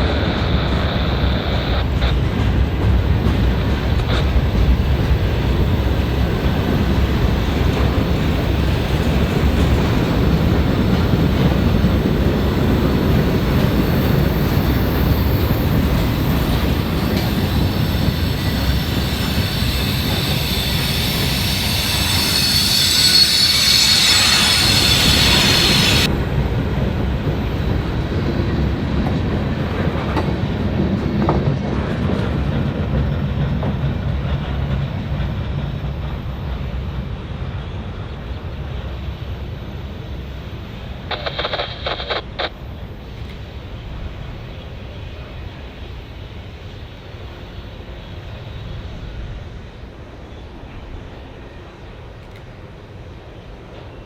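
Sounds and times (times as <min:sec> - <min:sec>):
train wheels rumbling on rails: 0:00.0 - 0:54.0
high-pitched wheel squeal: 0:16.1 - 0:26.1.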